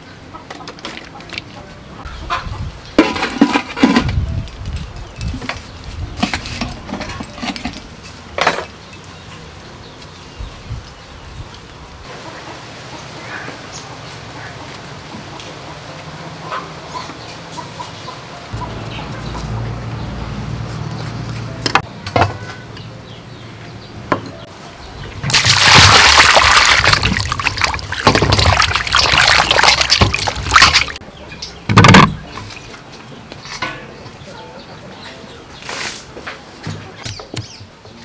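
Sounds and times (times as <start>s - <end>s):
water splashing and sloshing: 25.2s - 31.0s.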